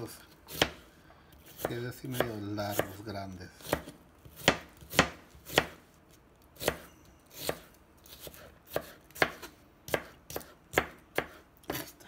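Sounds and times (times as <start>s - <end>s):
knife slicing onion: 0.0s - 12.0s.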